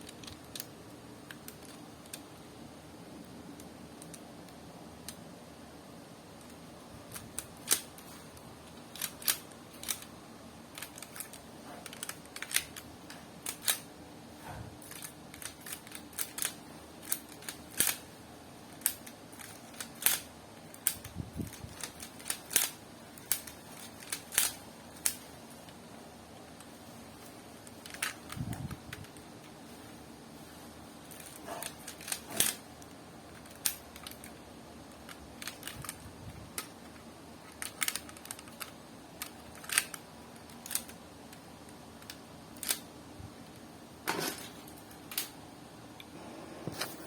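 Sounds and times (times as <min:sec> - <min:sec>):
faint steady hum: 0:00.0 - 0:47.0
plastic pieces clicking and snapping: 0:06.4 - 0:10.1, 0:10.7 - 0:13.9, 0:14.8 - 0:18.1, 0:18.7 - 0:25.3, 0:27.6 - 0:29.6, 0:31.1 - 0:42.9, 0:44.3 - 0:45.4.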